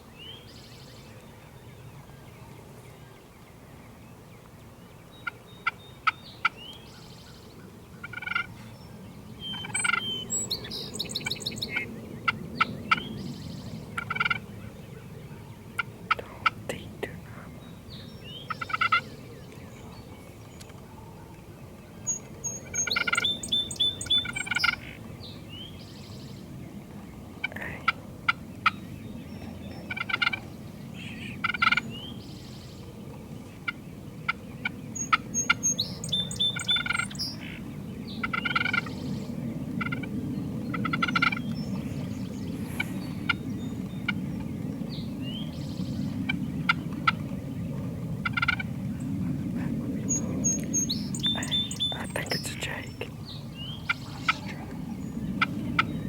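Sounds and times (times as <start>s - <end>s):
low background rush: 10.5s - 56.0s
turkeys gobbling: 48.2s - 48.7s.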